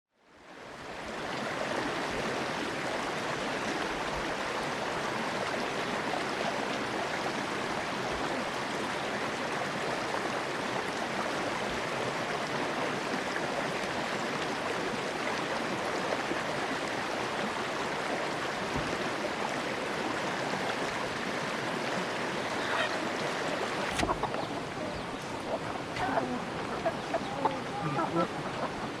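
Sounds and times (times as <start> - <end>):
flowing water rushing: 0.2 - 29.0.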